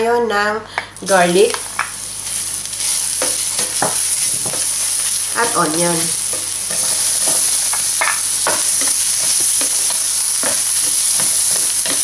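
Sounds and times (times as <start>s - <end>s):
garlic and onion sizzling: 1.0s - 12.0s
spoon scraping and tapping pan: 3.2s - 4.8s, 6.3s - 12.0s.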